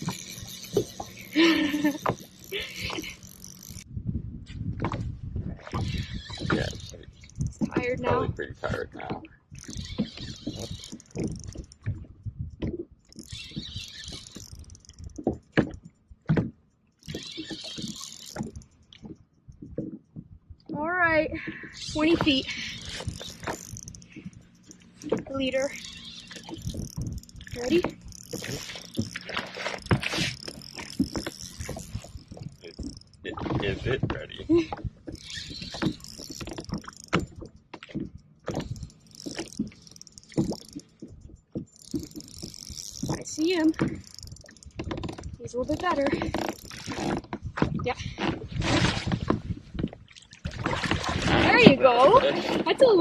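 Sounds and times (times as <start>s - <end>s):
fishing reel cranking: 0.0s - 3.9s, 5.6s - 8.4s, 9.5s - 16.2s, 16.9s - 19.6s, 21.7s - 49.1s.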